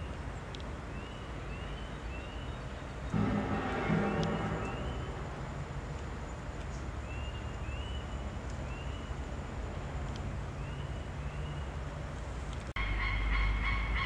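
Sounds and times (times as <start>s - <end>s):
low rumble: 3.1s - 7.0s.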